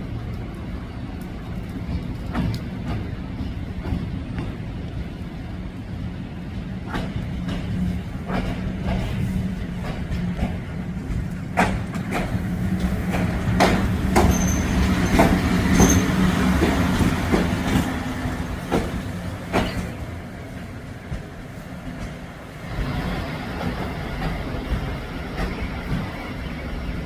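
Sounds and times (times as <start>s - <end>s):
electric locomotive hum: 0.0s - 27.0s
wheels clicking over rail joints: 0.1s - 5.0s, 6.8s - 26.6s
high wheel squeals: 14.2s - 16.2s.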